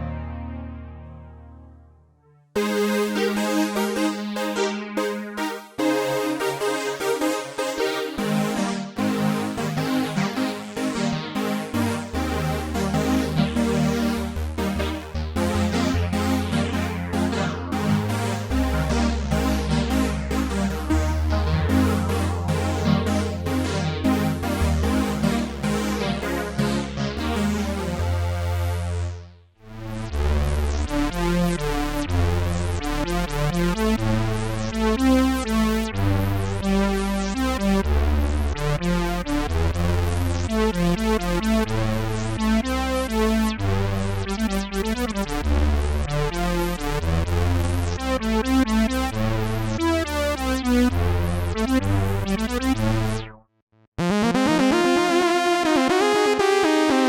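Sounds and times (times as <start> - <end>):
synthesizer bass line: 0.0 - 29.2, 29.8 - 53.4, 54.0 - 57.0
rapid high synthesizer notes: 2.6 - 28.6, 54.0 - 57.0.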